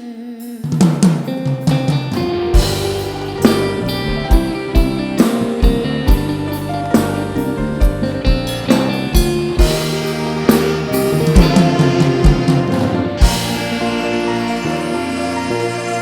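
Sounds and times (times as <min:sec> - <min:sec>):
drum kit kick beat: 0:00.6 - 0:14.6
sustained pitched instrument tones: 0:09.3 - 0:16.0.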